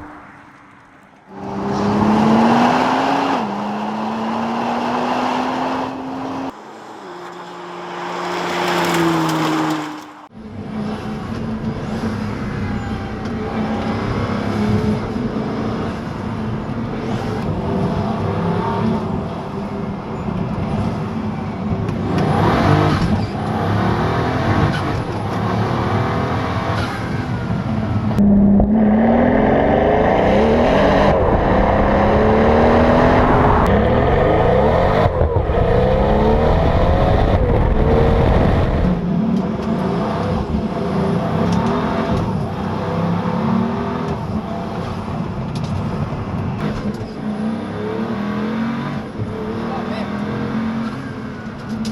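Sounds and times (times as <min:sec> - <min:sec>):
supercar engine accelerating: 0:00.0 - 0:12.3, 0:13.6 - 0:51.9.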